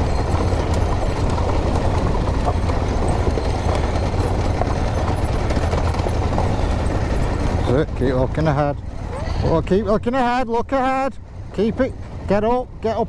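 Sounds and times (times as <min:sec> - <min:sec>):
motorcycle engine rumble: 0:00.0 - 0:10.4
tyre and ground noise: 0:00.0 - 0:13.0.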